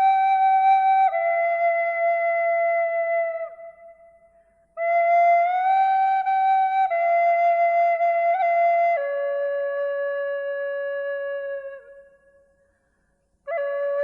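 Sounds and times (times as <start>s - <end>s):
slow flute-like melody: 0.0s - 12.6s, 13.5s - 14.0s.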